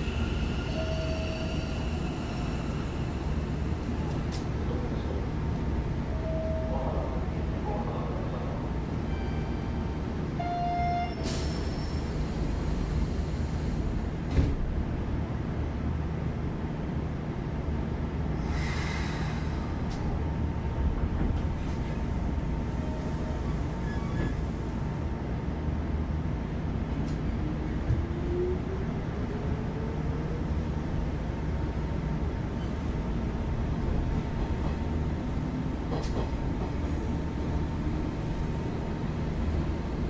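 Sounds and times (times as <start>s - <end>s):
train wheels rumbling on rails: 11.1s - 40.0s.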